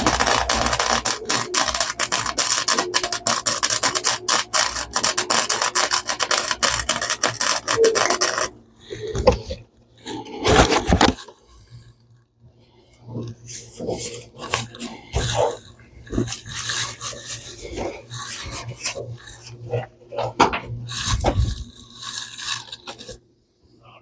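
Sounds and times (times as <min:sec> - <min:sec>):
welder crackling: 0:00.0 - 0:08.6.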